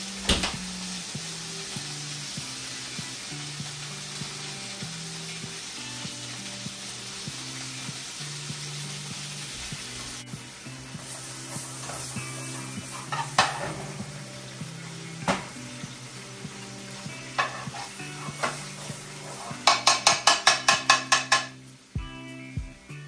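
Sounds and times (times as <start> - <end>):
food sizzling in a pan: 0.0 - 23.0
utensil knocking against pan: 13.1 - 14.0, 17.3 - 18.6, 19.4 - 21.6.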